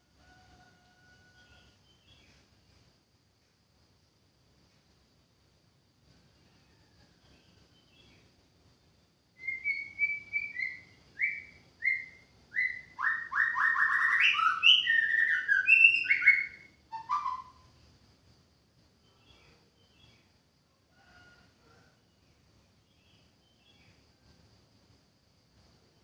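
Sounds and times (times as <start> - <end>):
bird singing whistled song: 9.4 - 17.8.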